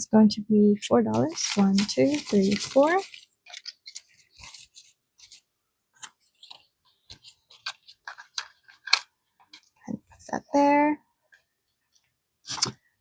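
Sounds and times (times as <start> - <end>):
paper bills rustling: 1.1 - 5.5.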